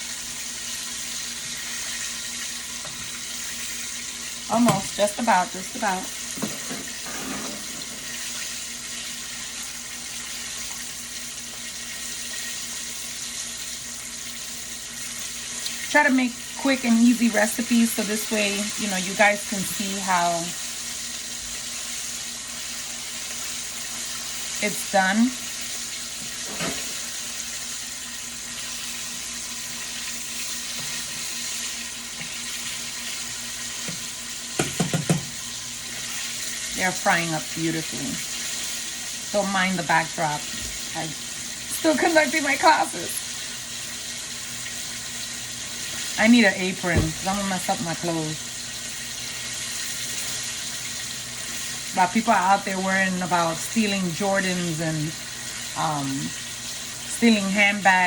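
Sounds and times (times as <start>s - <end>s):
chicken wings sizzling in hot oil: 0.0s - 58.0s.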